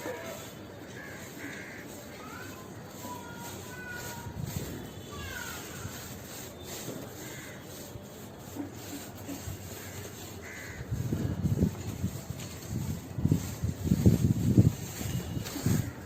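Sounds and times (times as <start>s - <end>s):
outdoor background noise: 0.0s - 16.0s
crows cawing: 0.8s - 2.0s, 7.2s - 7.7s, 9.7s - 11.0s.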